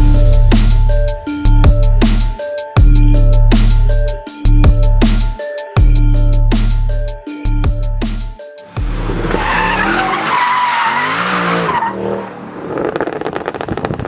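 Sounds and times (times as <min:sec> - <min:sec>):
electronic music: 0:00.0 - 0:10.1
car engine revving: 0:08.7 - 0:14.0
car tires squealing: 0:08.9 - 0:14.0.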